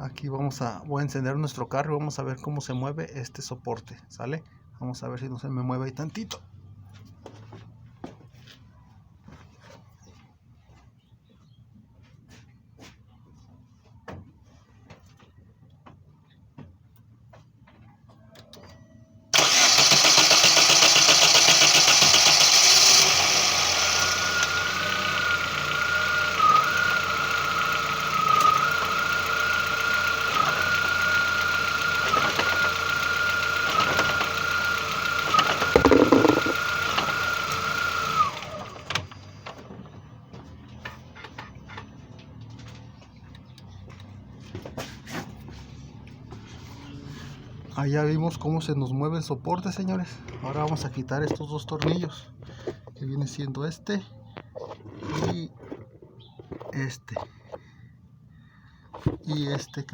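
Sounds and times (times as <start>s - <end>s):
car engine whining: 19.4s - 41.8s
sharp engine knock: 35.8s - 36.6s.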